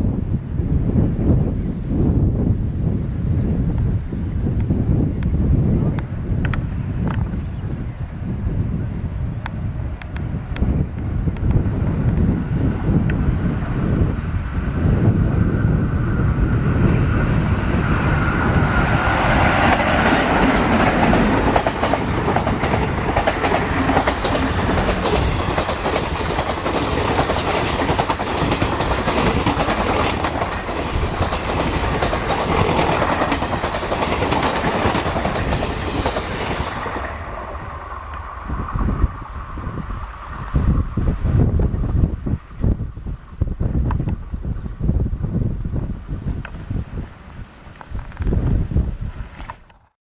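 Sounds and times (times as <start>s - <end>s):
train wheels clattering: 18.8s - 38.2s.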